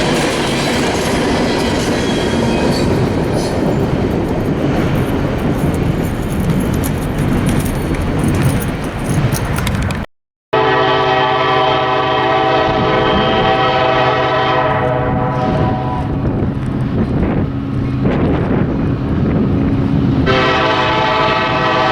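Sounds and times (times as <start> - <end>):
freight train rolling past: 0.0 - 10.0, 10.6 - 21.9
rail clicks: 0.0 - 10.1, 14.6 - 20.6
locomotive air horn: 10.5 - 16.2, 20.2 - 21.9.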